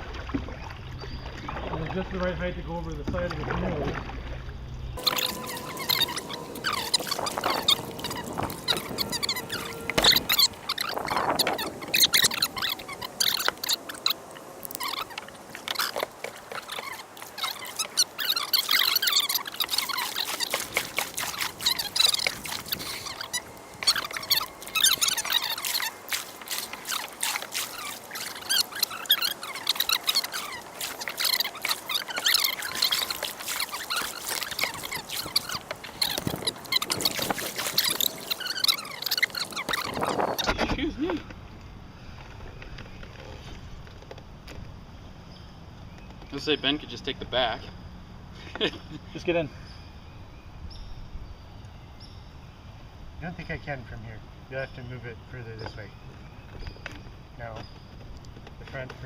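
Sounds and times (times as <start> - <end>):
water splashing and trickling: 0.0 - 41.2.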